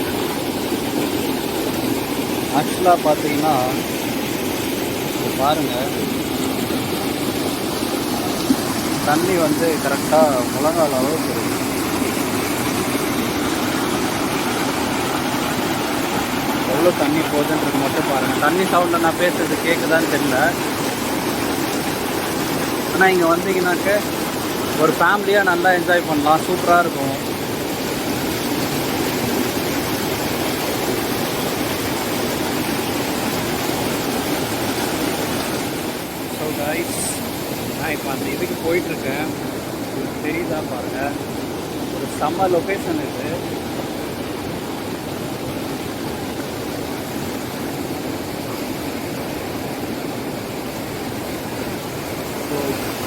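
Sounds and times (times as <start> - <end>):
river water rushing over rocks: 0.0 - 53.0.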